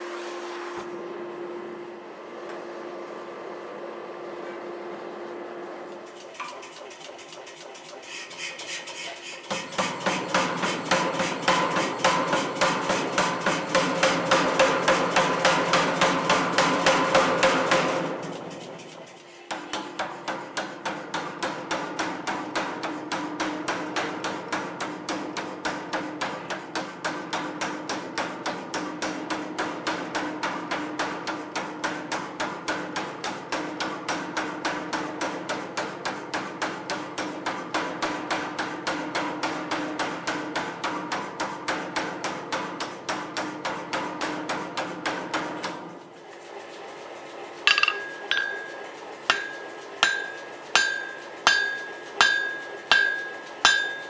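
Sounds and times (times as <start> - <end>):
hammer ringing on anvil: 47.7 - 54.0.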